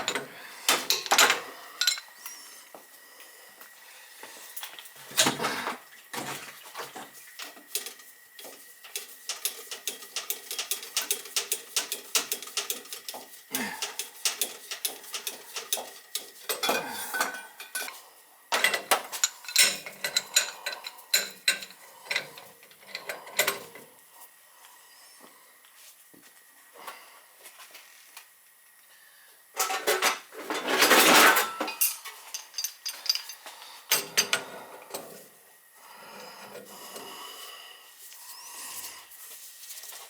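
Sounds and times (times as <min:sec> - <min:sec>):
metal tools clanking: 0:00.0 - 0:02.4, 0:13.8 - 0:17.9, 0:18.5 - 0:23.9, 0:29.6 - 0:35.1.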